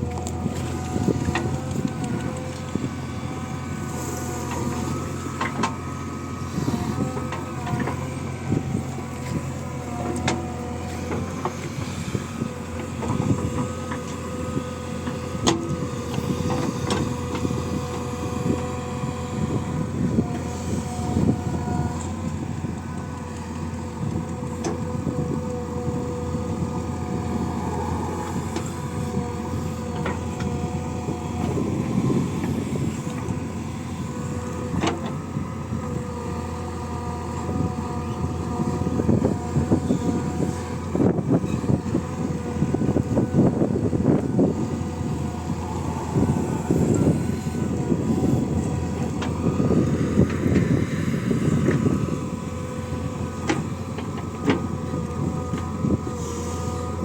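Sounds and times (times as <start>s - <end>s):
diesel machinery engine running: 0.0s - 57.0s.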